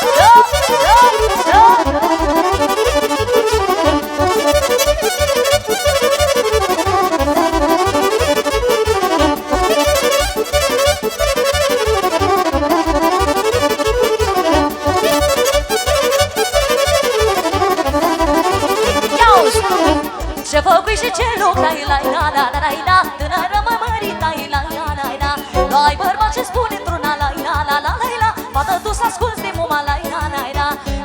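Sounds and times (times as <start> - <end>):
fast melodic runs: 0.0 - 20.4
steady bass beat: 0.0 - 20.4.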